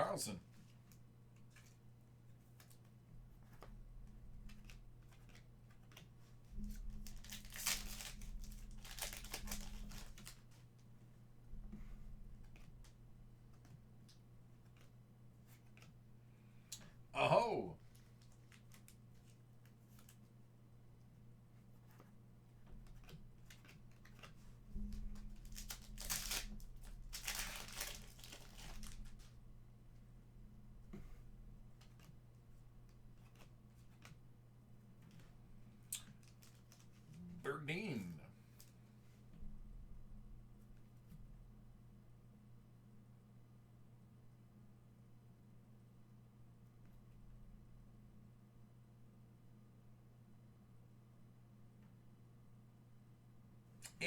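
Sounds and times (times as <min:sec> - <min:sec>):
faint steady hum: 0:00.0 - 0:54.0
foil wrapper crinkling and tearing: 0:07.0 - 0:10.4, 0:25.4 - 0:29.2.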